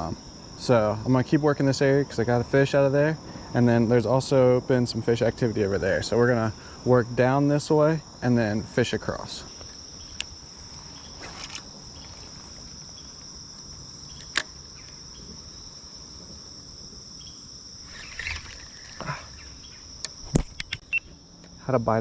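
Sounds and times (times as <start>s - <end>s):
high-pitched insect chorus: 0.0s - 22.0s
short scuffs: 11.1s - 12.1s, 20.2s - 20.8s
sharp click: 20.0s - 21.6s.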